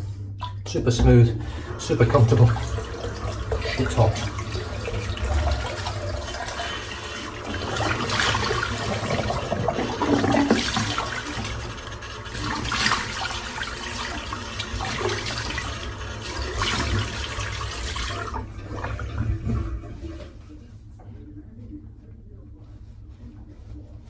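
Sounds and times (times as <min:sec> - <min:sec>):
tap water running into sink: 0:00.4 - 0:20.4.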